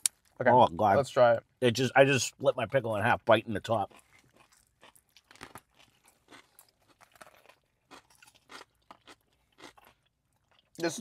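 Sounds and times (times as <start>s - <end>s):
crunching pickle: 3.6s - 10.9s.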